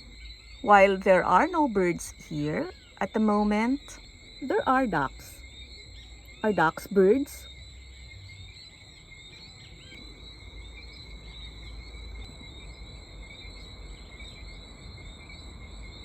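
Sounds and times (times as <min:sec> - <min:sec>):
chorus of chirping creatures: 0:00.0 - 0:07.6.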